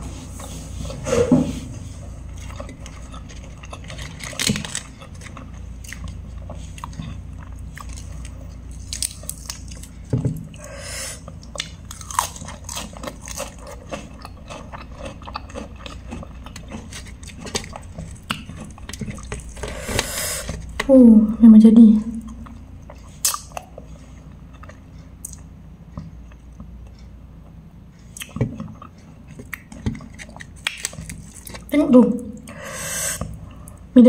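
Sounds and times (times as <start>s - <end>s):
person chewing and crunching: 2.3s - 20.9s, 22.2s - 27.1s, 28.0s - 31.7s.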